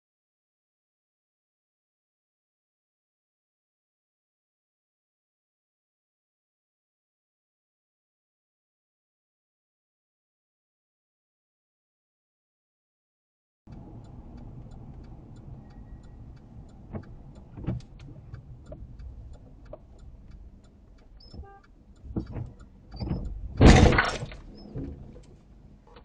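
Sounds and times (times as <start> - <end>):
car road rumble: 13.7 - 26.0
sharp knocks: 22.1 - 25.1
loud impact: 23.5 - 24.4.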